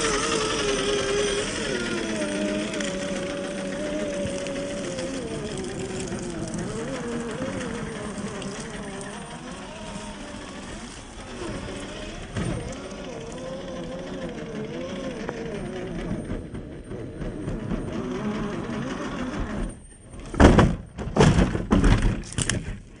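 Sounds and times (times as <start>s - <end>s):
short rough motor bursts: 0.0s - 16.3s
electric motor and gears whining: 0.0s - 20.9s.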